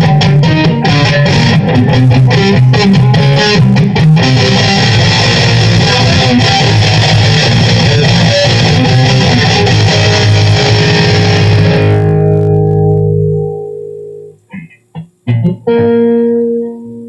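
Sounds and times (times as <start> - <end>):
electric guitar: 0.0 - 17.0
bass line: 8.6 - 15.6.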